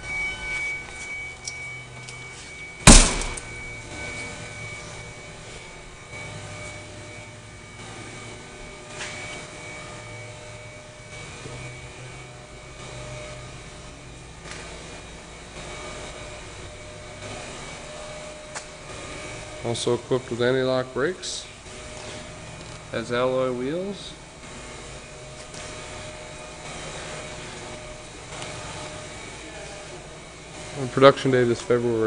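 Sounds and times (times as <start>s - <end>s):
steady low hum: 0.0s - 32.0s
car door thunk: 2.9s - 3.5s.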